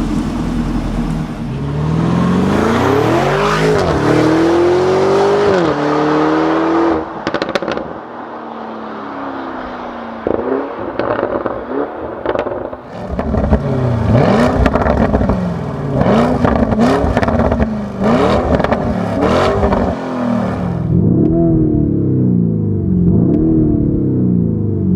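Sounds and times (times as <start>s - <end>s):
car engine revving: 0.0s - 24.9s
exhaust crackles and pops: 7.2s - 7.9s, 10.2s - 20.0s.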